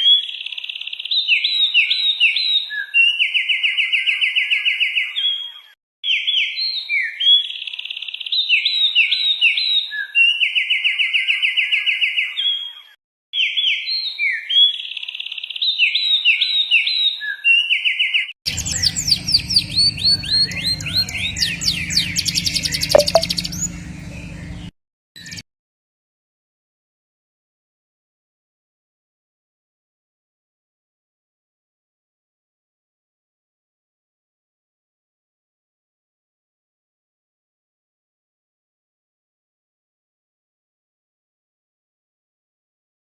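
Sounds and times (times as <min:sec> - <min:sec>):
bird whistled notes: 0:18.5 - 0:23.8
songbird chirps and trill: 0:18.5 - 0:24.6
low background hum: 0:18.5 - 0:24.7.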